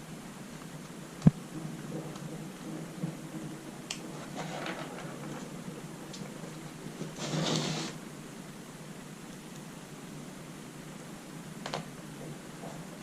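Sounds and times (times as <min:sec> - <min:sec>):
rustling scrape: 0:01.5 - 0:08.0.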